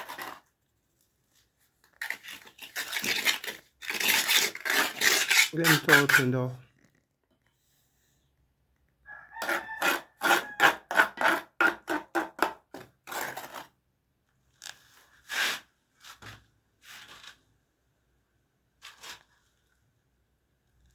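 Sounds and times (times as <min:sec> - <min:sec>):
hand tool rasping on plastic pipe: 0:02.0 - 0:06.4, 0:09.4 - 0:13.7.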